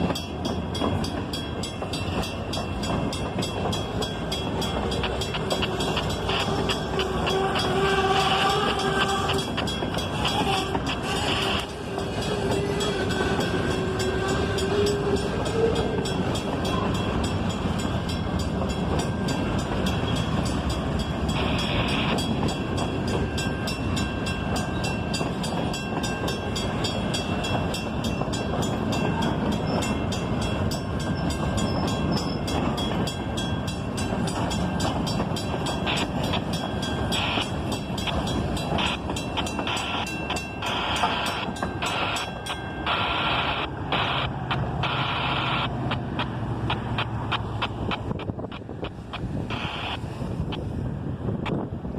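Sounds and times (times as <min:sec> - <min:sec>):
freight train wheels rumbling on rail: 0:00.0 - 0:51.9.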